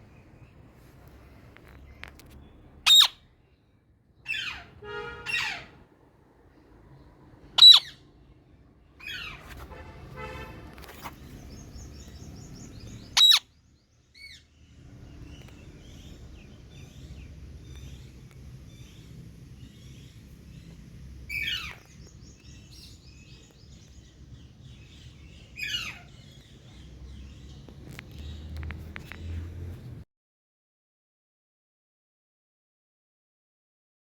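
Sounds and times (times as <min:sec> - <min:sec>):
parrot calling: 0:02.8 - 0:03.2, 0:04.2 - 0:05.8, 0:07.6 - 0:08.0, 0:13.0 - 0:13.5, 0:21.3 - 0:21.9, 0:25.6 - 0:26.4.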